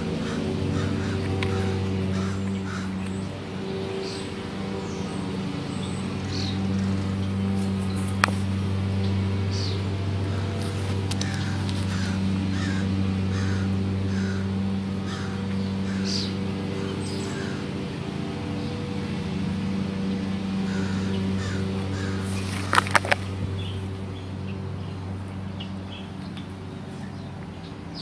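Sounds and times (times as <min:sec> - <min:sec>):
crows cawing: 0:00.0 - 0:04.2, 0:10.2 - 0:18.1, 0:20.5 - 0:23.2
steady low hum: 0:00.0 - 0:28.0.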